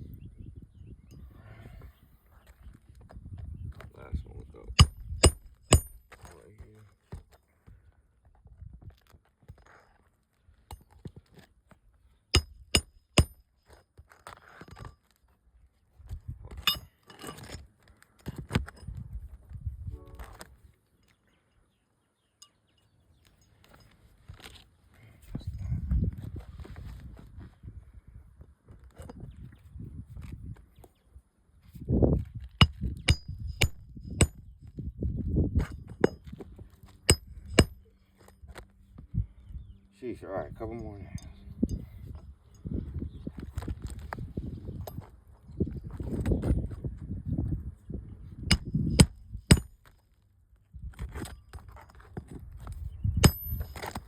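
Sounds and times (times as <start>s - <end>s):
metallic hand tool strikes: 4.8s - 6.1s, 12.4s - 13.4s, 16.6s - 17.5s, 32.6s - 34.4s, 37.1s - 37.8s, 48.5s - 49.8s, 53.2s - 54.0s
nails clinking: 16.6s - 17.6s.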